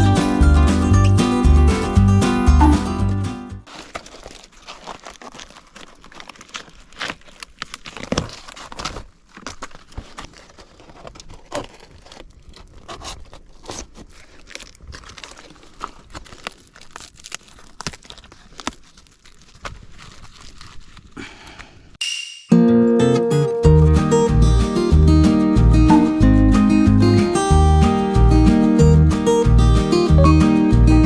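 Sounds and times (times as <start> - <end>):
crinkling and crackling: 3.6 - 22.0.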